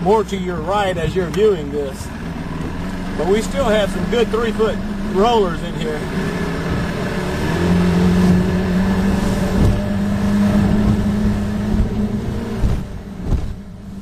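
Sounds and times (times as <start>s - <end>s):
boat engine running: 0.0s - 14.0s
low thuds: 8.2s - 13.9s.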